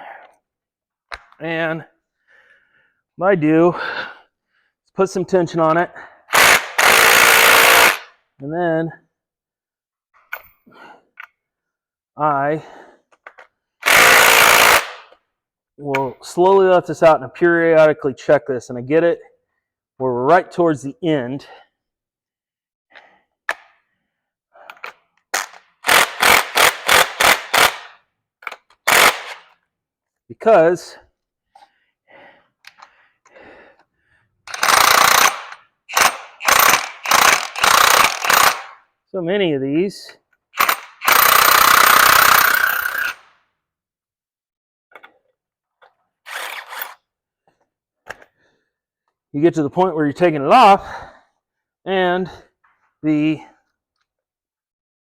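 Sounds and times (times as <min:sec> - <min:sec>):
impact wrench bursts: 0:06.3 - 0:08.2, 0:13.8 - 0:15.2, 0:24.7 - 0:29.6, 0:34.5 - 0:38.8, 0:40.6 - 0:43.3, 0:46.3 - 0:47.0
tools clicking: 0:24.6 - 0:29.6, 0:32.6 - 0:32.9, 0:34.5 - 0:38.8, 0:40.6 - 0:43.3, 0:44.9 - 0:47.0.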